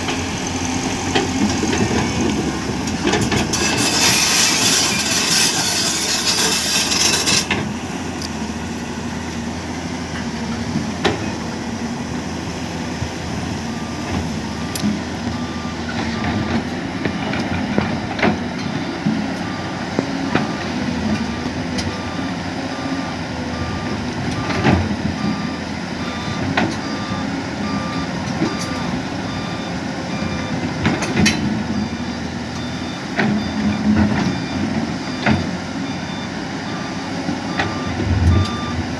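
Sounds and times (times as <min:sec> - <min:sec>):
heavy construction machinery running: 0:00.0 - 0:38.9
reversing alarm beeping: 0:13.7 - 0:17.4, 0:18.6 - 0:30.6, 0:31.7 - 0:38.8.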